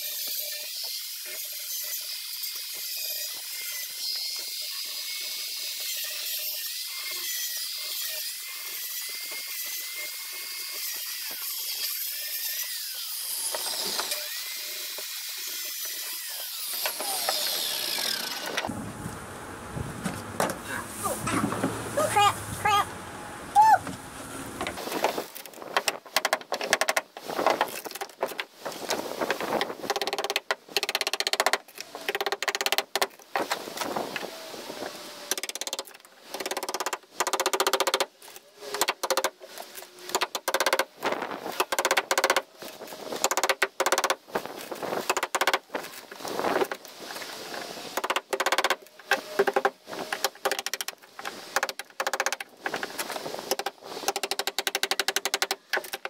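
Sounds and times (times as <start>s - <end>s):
power saw cutting in bursts: 12.8s - 18.7s.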